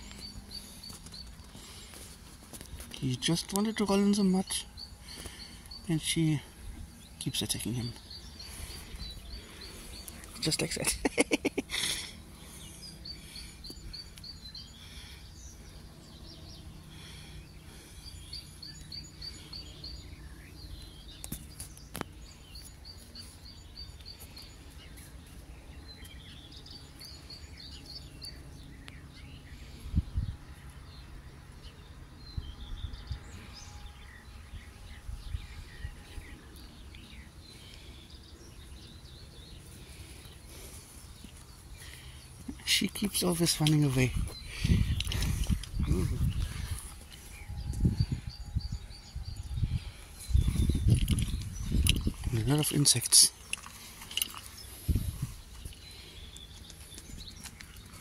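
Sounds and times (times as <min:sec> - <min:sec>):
low outdoor rumble: 0:00.0 - 0:58.0
songbirds singing: 0:00.0 - 0:58.0.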